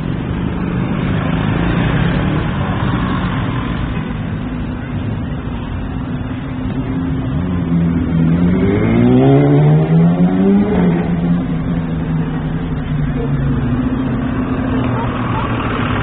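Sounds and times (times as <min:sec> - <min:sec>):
vehicle engine revving: 0:06.0 - 0:16.0.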